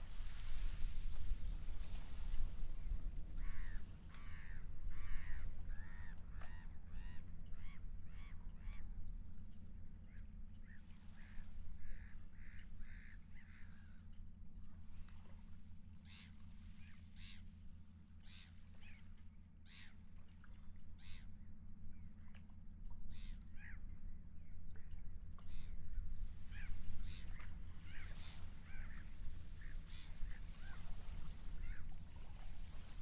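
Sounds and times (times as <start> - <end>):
seagulls calling: 3.4 - 8.8, 26.5 - 32.0.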